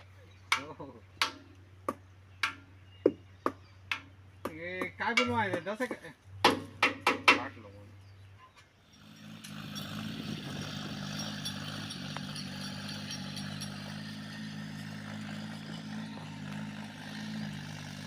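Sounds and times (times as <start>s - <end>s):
tractor diesel engine running: 9.0s - 18.0s.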